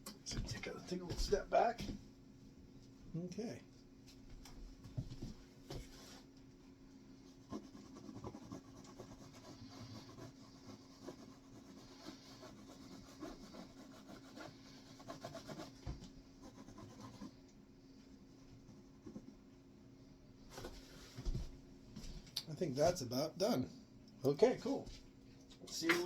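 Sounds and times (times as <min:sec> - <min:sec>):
steady low hum: 0:00.0 - 0:26.0
paintbrush scratching on canvas: 0:07.4 - 0:17.4.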